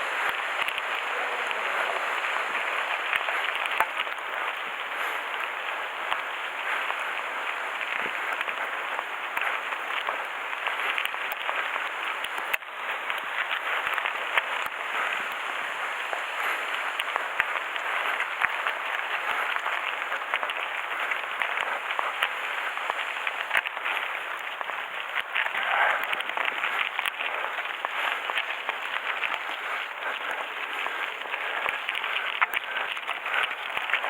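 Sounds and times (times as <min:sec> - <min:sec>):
bike tyres on gravel: 0:00.0 - 0:34.0
bike clicks and rattles: 0:16.1 - 0:34.0.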